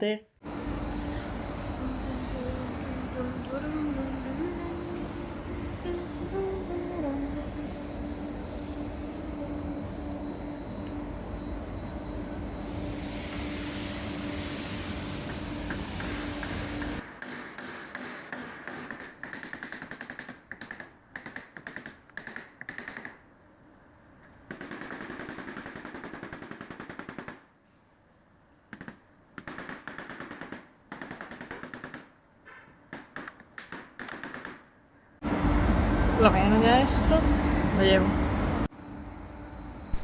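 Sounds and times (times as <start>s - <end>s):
steady hum: 0.4s - 17.0s, 35.2s - 40.0s.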